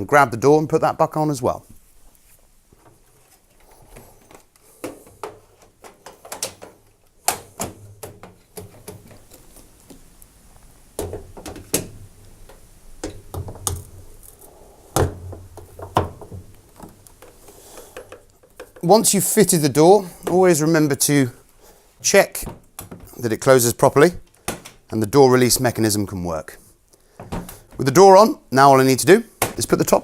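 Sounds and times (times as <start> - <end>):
plastic clicks and knocks: 11.0 - 14.0, 15.0 - 18.9.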